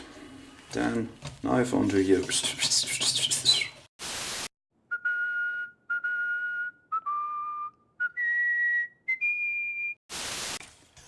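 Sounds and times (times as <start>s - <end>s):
person whistling a tune: 4.9s - 10.0s.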